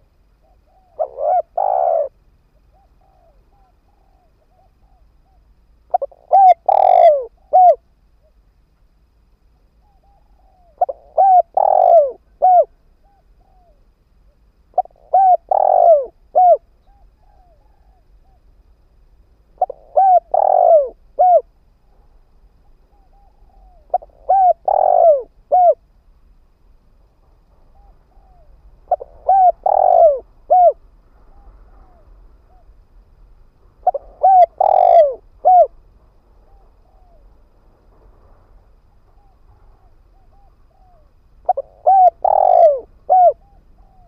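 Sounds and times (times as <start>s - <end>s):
dove cooing: 0.0s - 8.4s, 9.8s - 18.5s, 19.5s - 21.6s, 22.8s - 25.9s, 27.7s - 32.8s, 33.8s - 35.8s, 36.4s - 37.4s, 38.9s - 44.0s.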